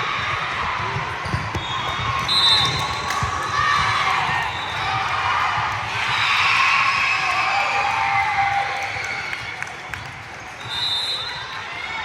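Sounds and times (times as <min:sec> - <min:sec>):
young players shouting and cheering: 0:00.0 - 0:12.0.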